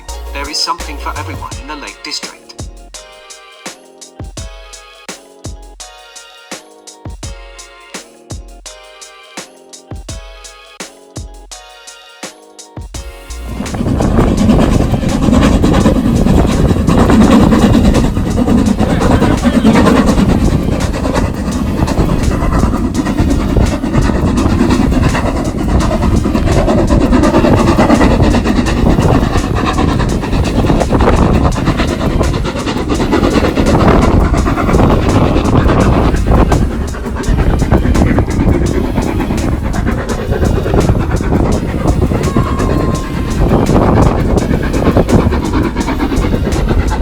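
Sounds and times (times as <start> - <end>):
train rumbling past: 0.0 - 3.6, 12.9 - 47.0
wheels clacking on rails: 12.9 - 47.0.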